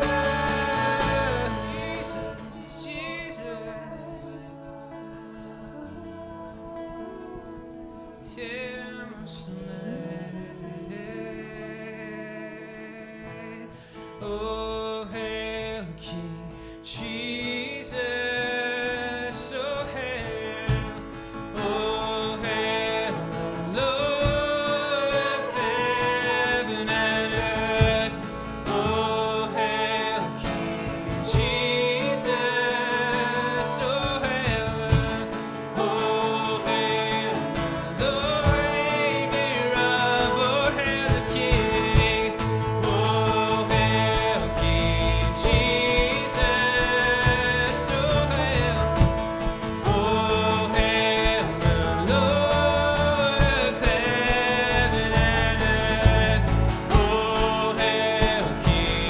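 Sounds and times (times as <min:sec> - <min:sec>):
worship band playing: 0:00.0 - 0:12.0, 0:18.3 - 0:59.0
person singing melody: 0:00.0 - 0:13.6, 0:17.0 - 0:59.0
bass: 0:00.0 - 0:59.0
guitar: 0:00.0 - 0:59.0.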